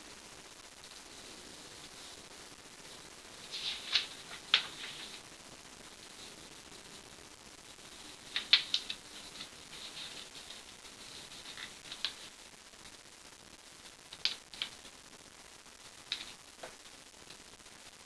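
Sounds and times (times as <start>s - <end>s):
paper rustling and crackling: 3.4s - 5.2s, 8.0s - 12.3s.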